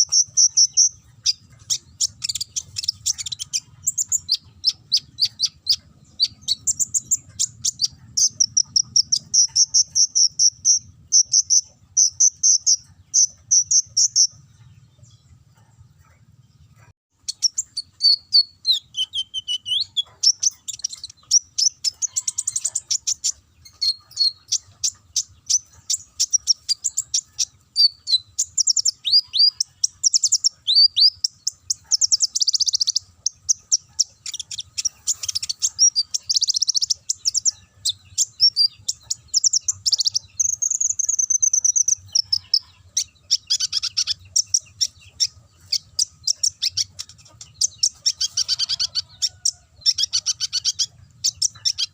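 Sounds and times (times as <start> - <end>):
bird singing high trills: 17.3 - 51.9.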